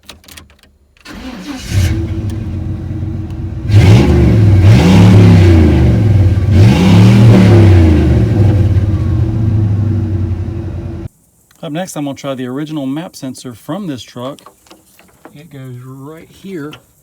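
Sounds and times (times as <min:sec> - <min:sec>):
pickup engine starting and revving: 0:01.0 - 0:11.1.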